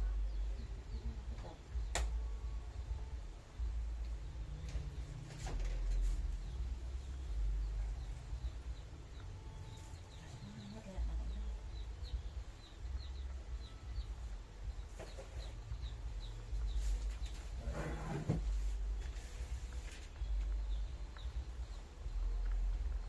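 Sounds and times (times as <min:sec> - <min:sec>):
steady low rumble: 0:00.0 - 0:17.7, 0:18.4 - 0:23.0
chickens peeping: 0:06.0 - 0:17.6.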